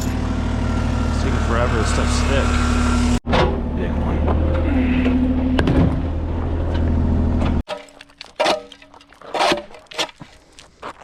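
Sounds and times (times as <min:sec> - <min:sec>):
loading equipment engine running: 0:00.0 - 0:07.6
concrete rubble clanking and scraping: 0:07.6 - 0:11.0.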